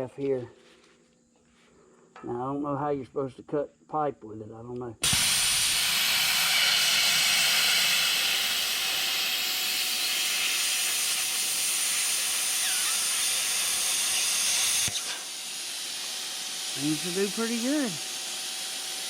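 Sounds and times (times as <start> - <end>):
plasma cutter hissing: 5.0 - 19.0.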